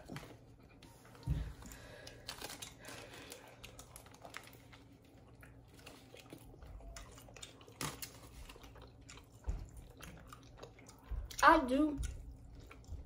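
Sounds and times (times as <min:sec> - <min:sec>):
soft crinkles: 0:00.0 - 0:09.6
chewing food: 0:00.0 - 0:13.0.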